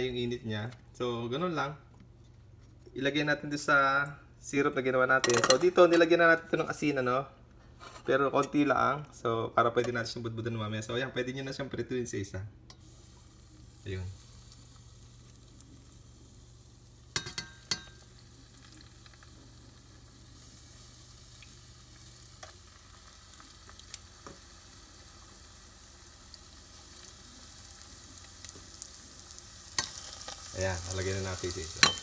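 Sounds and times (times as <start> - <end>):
eggplant frying in oil: 12.8 - 32.0.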